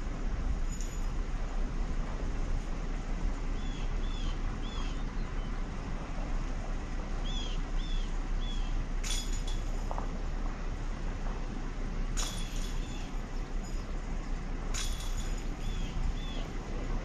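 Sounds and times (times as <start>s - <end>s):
low outdoor rumble: 0.0s - 17.0s
bird chirping: 3.6s - 5.6s.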